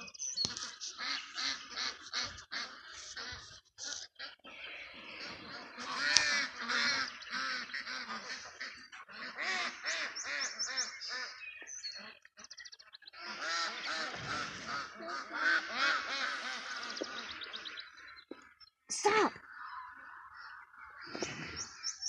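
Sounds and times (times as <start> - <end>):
ducks quacking: 0.0 - 22.0.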